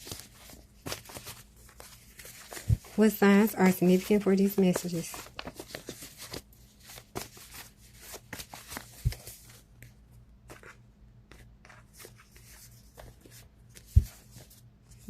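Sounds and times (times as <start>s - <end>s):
cards being shuffled: 0.0s - 3.0s, 3.8s - 15.0s.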